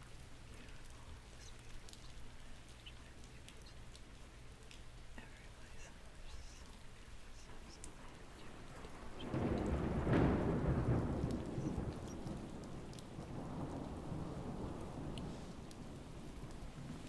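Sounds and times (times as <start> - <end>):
steady rain: 0.0 - 17.0
rolling thunder: 8.4 - 17.0.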